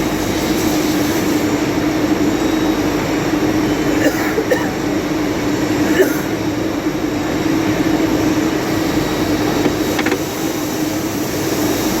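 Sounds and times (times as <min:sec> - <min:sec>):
lathe mechanical hum: 0:06.4 - 0:12.0.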